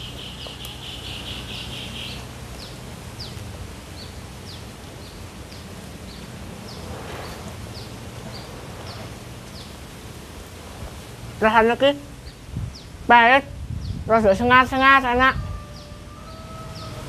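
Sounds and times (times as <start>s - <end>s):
bird chirping: 0.0s - 5.2s, 15.6s - 17.0s
background hiss: 0.0s - 17.0s.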